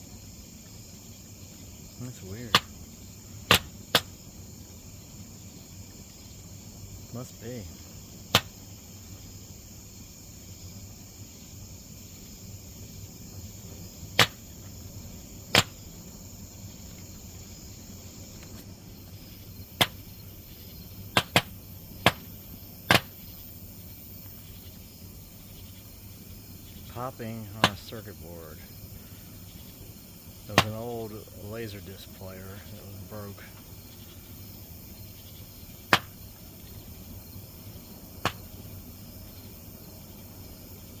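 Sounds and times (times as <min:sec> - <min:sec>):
faint steady hiss: 0:00.0 - 0:41.0
sharp pops from burning electronics: 0:02.1 - 0:04.3, 0:08.2 - 0:08.8, 0:14.0 - 0:14.8, 0:15.4 - 0:16.2, 0:18.3 - 0:23.6, 0:27.5 - 0:28.0, 0:29.8 - 0:31.1, 0:35.7 - 0:36.8, 0:38.2 - 0:38.7
sharp pop from burning circuit board: 0:02.5 - 0:02.8, 0:03.5 - 0:04.2, 0:08.3 - 0:08.6, 0:14.2 - 0:14.4, 0:15.5 - 0:15.8, 0:19.8 - 0:20.0, 0:21.1 - 0:22.3, 0:22.9 - 0:23.2, 0:30.5 - 0:30.8, 0:35.9 - 0:36.2, 0:38.2 - 0:38.5.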